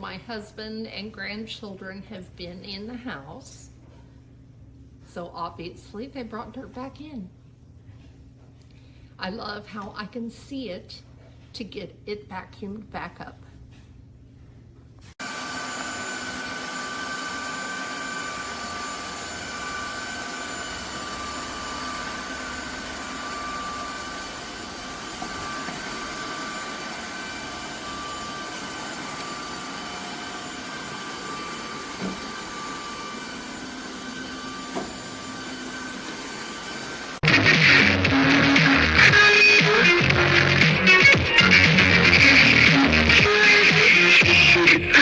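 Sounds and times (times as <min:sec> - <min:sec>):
vacuum cleaner whine: 0:15.2 - 0:45.0.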